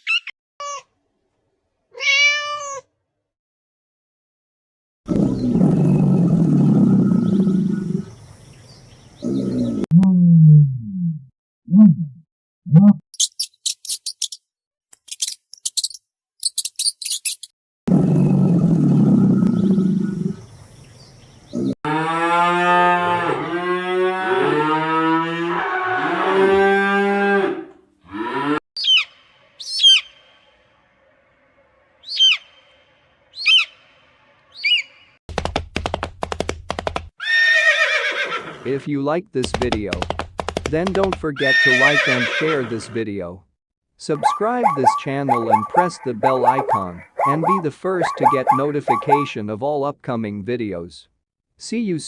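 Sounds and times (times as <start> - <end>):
rough noisy low animal sound: 5.1 - 9.9, 17.9 - 27.5, 29.3 - 34.5, 44.2 - 49.3
quick high chirps: 13.2 - 14.4, 15.0 - 17.5
cow mooing: 21.6 - 28.6.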